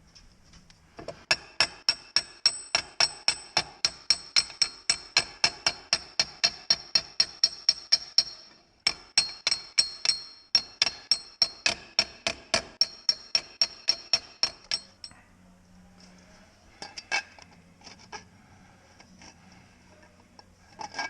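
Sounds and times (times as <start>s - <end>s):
hammer striking steel pan: 1.3s - 15.1s
light metal clinks: 14.4s - 15.2s.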